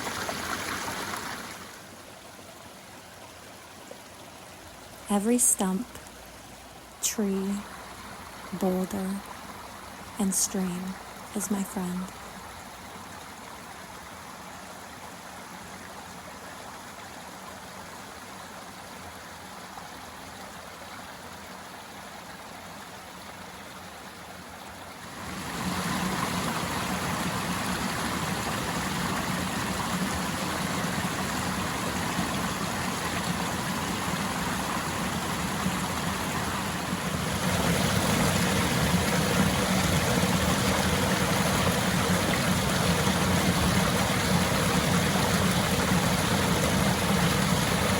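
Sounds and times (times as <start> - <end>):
stream water rushing: 0.0 - 47.9.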